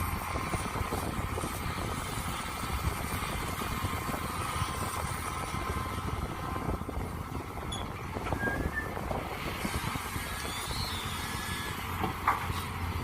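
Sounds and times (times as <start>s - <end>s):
excavator engine running: 0.0s - 13.0s
faint squeaks and clicks: 7.7s - 8.8s.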